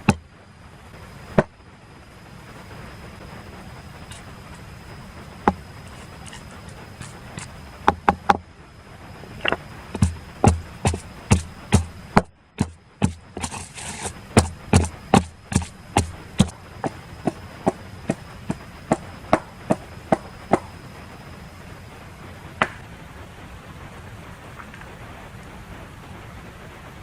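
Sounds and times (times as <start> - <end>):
blade chopping: 9.4 - 20.7.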